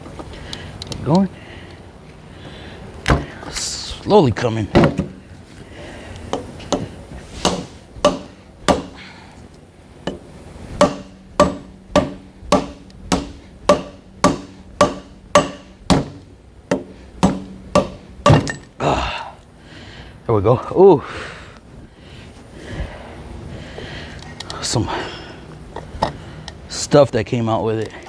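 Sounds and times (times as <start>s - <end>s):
hammer blows on metal: 10.8s - 18.6s.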